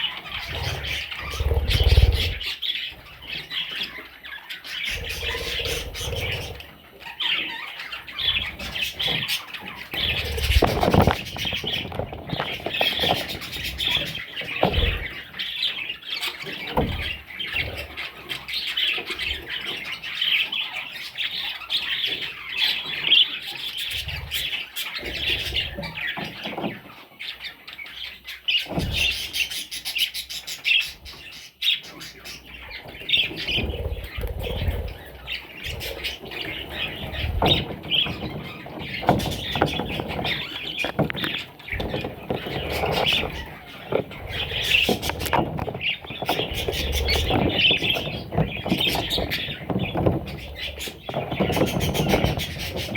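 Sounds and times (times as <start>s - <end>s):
budgerigars chattering and squawking: 0.0s - 52.9s
dull thumps: 33.2s - 52.9s.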